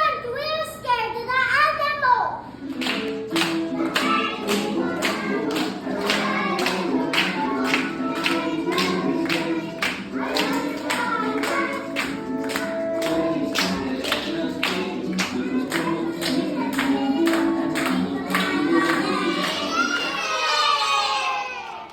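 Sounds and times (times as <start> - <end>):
music: 2.6 - 20.1
sharp clapping beat: 2.7 - 19.7
children singing: 2.9 - 21.6.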